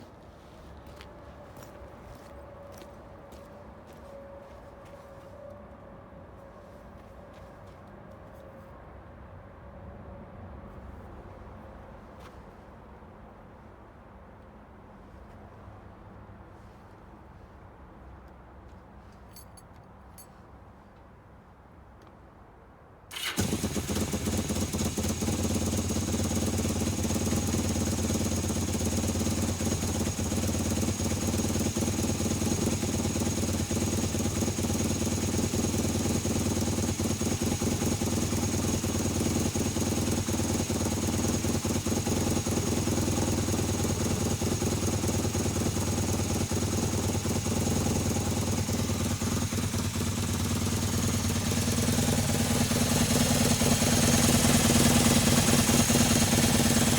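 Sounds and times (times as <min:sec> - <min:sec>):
motorcycle engine idling: 0:23.1 - 0:56.9.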